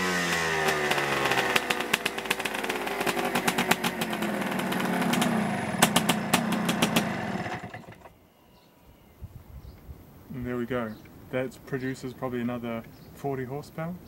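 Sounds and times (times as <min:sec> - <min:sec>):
engine pops and crackles: 0:00.0 - 0:08.1
motorcycle engine running: 0:00.0 - 0:08.1.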